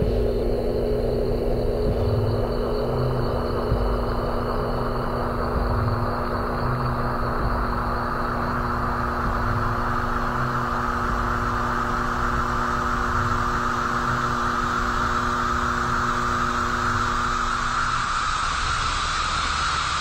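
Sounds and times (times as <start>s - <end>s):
low rumble: 0.0s - 17.8s
constant hum: 0.0s - 20.0s
hiss: 8.3s - 20.0s.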